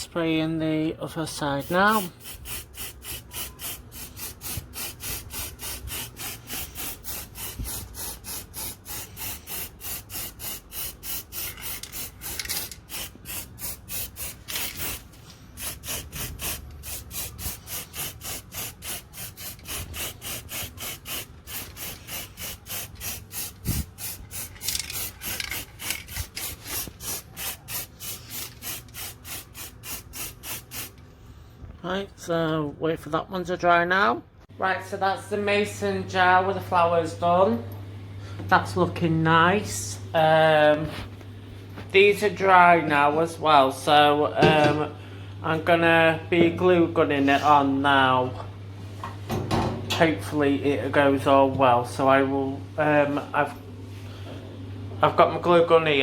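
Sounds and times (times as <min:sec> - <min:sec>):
aerosol spray paint hissing: 0:01.5 - 0:31.0.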